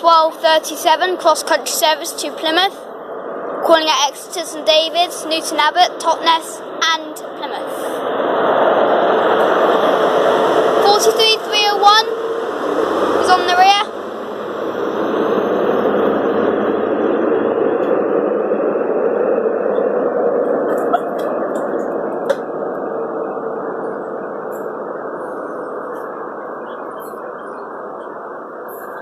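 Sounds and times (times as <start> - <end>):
diesel train pulling away: 7.7 - 26.0.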